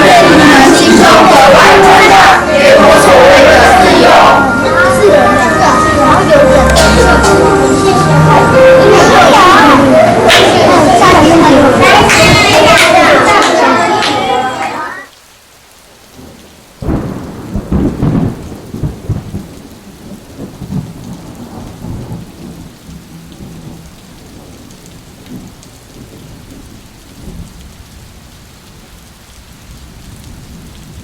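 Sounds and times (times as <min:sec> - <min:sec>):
audience applauding: 0:00.0 - 0:04.4, 0:05.6 - 0:15.1.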